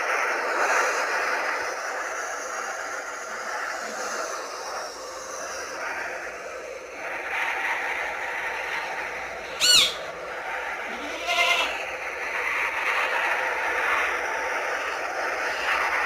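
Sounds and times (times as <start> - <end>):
steady rushing noise: 0.0 - 16.0
animal calls: 7.2 - 14.1.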